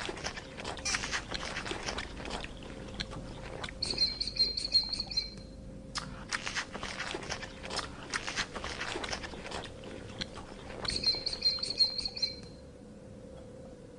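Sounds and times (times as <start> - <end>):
high bird trill: 3.8 - 5.6, 10.9 - 12.6
crisp crunching: 6.2 - 11.0.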